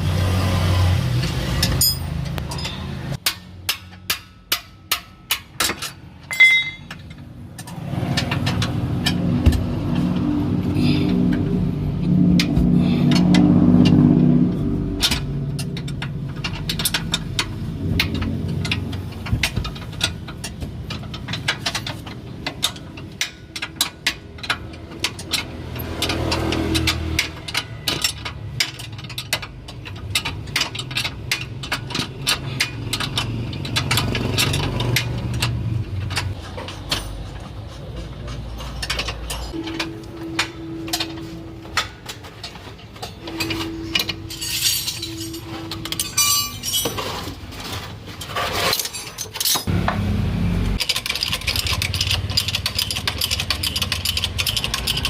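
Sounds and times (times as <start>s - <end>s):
motor vehicles passing: 0.0s - 3.8s, 6.0s - 48.7s, 49.4s - 55.0s
metallic clicks and clinks: 1.6s - 9.4s, 15.0s - 47.4s, 50.8s - 55.0s.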